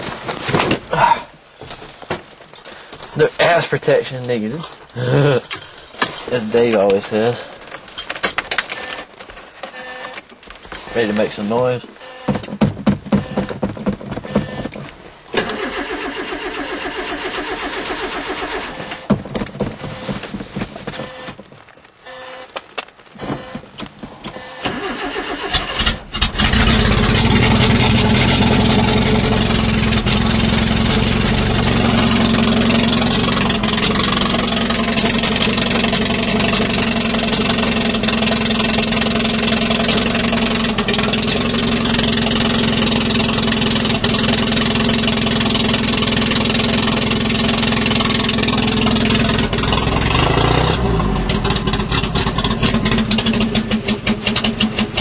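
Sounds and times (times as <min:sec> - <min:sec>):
car engine cranking: 0:04.1 - 0:22.4, 0:23.2 - 0:55.0
car engine idling: 0:15.4 - 0:20.4, 0:24.7 - 0:55.0.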